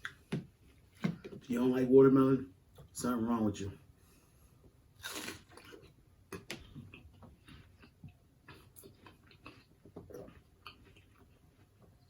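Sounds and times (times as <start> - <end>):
wet chewing of watermelon: 5.0 - 12.0.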